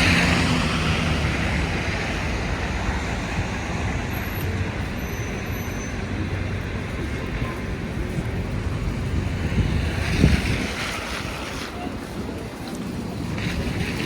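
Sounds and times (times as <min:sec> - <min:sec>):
traffic on a snowy road: 0:00.0 - 0:14.0
wind buffeting microphone: 0:06.1 - 0:14.0.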